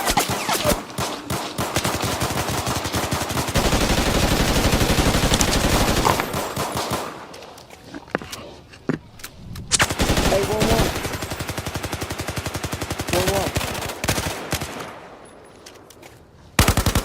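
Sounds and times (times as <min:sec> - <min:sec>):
gunfire: 0:00.0 - 0:07.3, 0:09.7 - 0:15.2.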